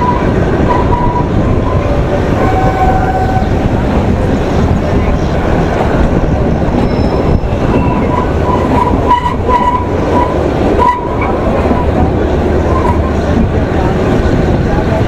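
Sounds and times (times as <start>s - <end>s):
wheels squealing on curve: 0.0s - 3.6s, 6.8s - 13.2s
train wheels rumbling on rail: 0.0s - 15.0s.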